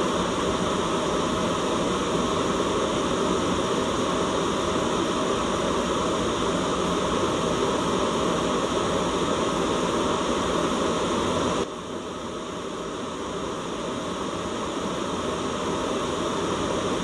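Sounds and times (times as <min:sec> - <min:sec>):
steady white noise: 0:00.0 - 0:17.0.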